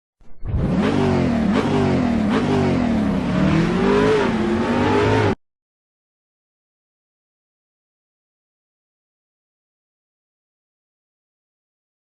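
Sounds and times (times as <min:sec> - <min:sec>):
car engine revving: 0:00.3 - 0:05.4.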